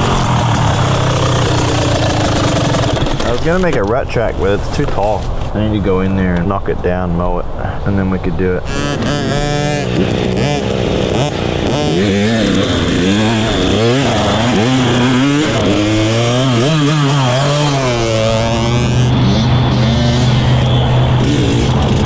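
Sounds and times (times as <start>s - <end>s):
dirt bike engines revving: 0.0s - 22.0s
steady engine drone: 0.0s - 22.0s.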